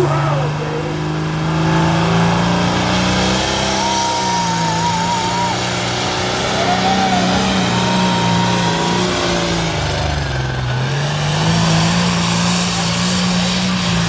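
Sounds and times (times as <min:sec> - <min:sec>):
tractor diesel engine under load: 0:00.0 - 0:14.0
thin high whistle: 0:01.7 - 0:10.9.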